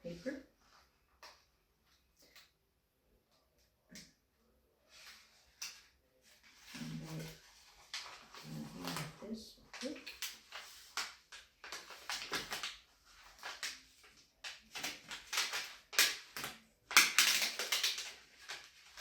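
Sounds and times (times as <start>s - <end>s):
vinyl paper rustling and crinkling: 4.8s - 19.0s.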